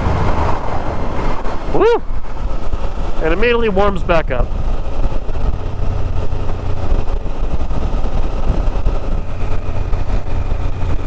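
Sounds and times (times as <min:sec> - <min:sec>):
motorcycle engine hum: 0:00.0 - 0:11.0
wind and road noise: 0:00.0 - 0:11.0.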